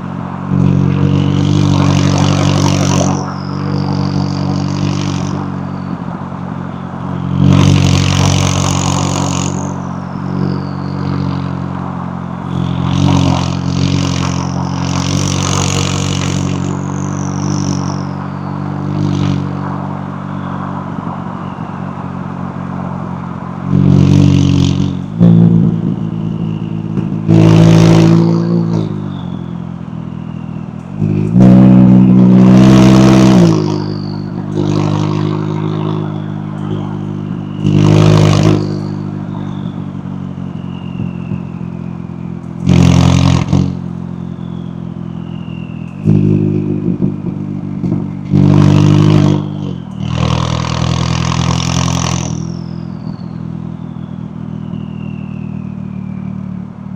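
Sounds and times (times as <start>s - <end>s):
car engine idling: 0.0s - 56.9s
car engine revving: 0.0s - 56.9s
turbo whistle: 23.7s - 47.2s, 48.3s - 56.5s.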